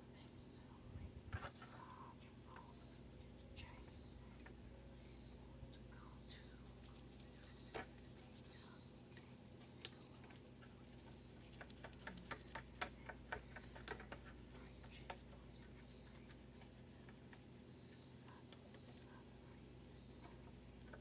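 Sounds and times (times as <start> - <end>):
low steady hum: 0.0 - 21.0
faint clicks and taps: 9.2 - 21.0.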